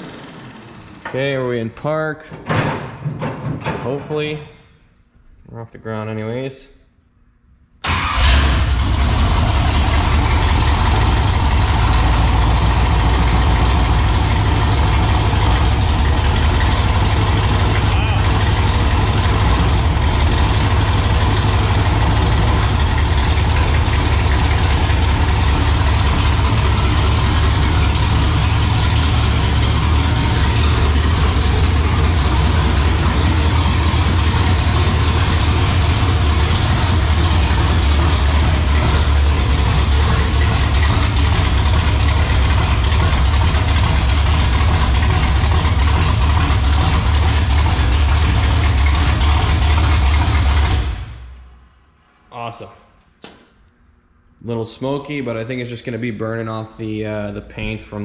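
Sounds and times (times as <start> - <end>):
car engine idling: 0.0 - 1.4, 7.8 - 52.0.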